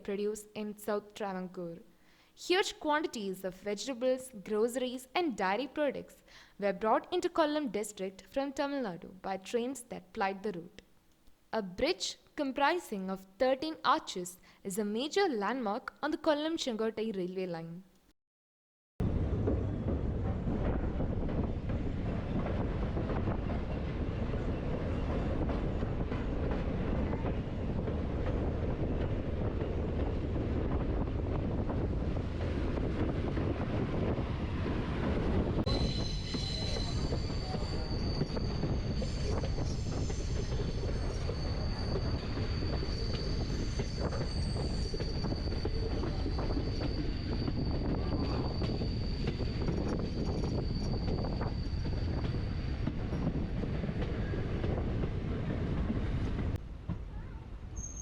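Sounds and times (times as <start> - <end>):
train wheels rumbling: 19.0 - 57.4
high wheel squeal: 35.7 - 53.2, 57.7 - 58.0.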